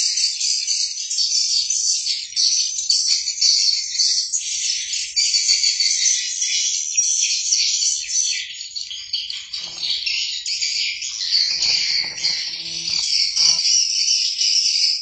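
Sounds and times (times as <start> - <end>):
birds chirping: 9.4 - 13.8
insects chirring: 9.6 - 10.1, 11.3 - 13.7.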